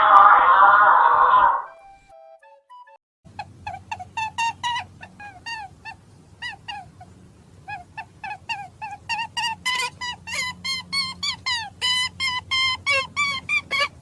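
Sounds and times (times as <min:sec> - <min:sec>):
birds calling: 0:03.3 - 0:14.0.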